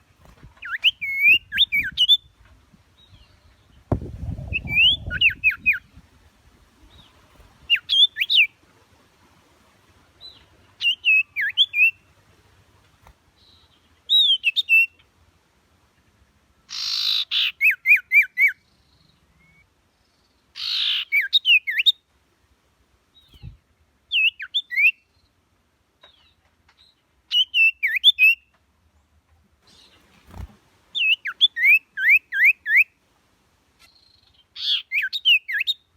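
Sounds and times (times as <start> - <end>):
bird singing whistled notes: 0.6 - 2.4, 4.2 - 6.0, 7.7 - 8.5, 10.8 - 12.0, 14.1 - 15.0, 16.7 - 18.7, 20.6 - 22.0, 23.2 - 25.3, 27.3 - 28.5, 31.0 - 33.0, 34.6 - 35.9
bird noisy rasps: 16.7 - 17.5, 20.6 - 21.2.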